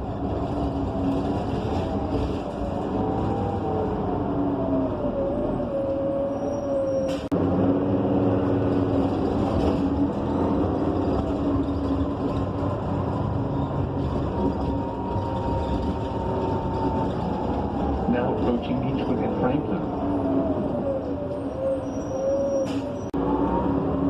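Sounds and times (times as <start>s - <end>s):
bus engine drone: 0.0s - 24.0s.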